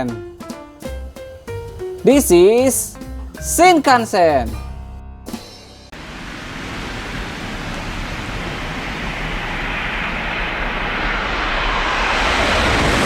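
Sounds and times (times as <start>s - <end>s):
train rushing past: 5.9s - 13.0s.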